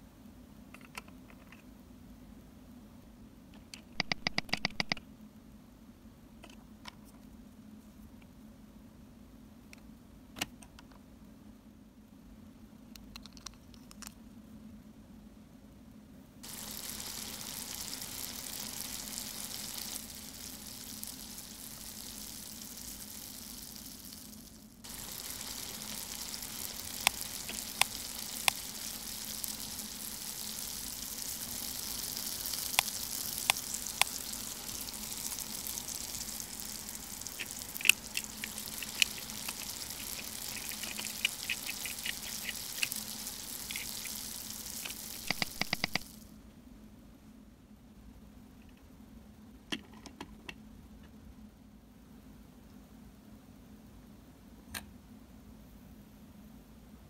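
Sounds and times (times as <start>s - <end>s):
meat sizzling on a griddle: 16.4s - 46.3s.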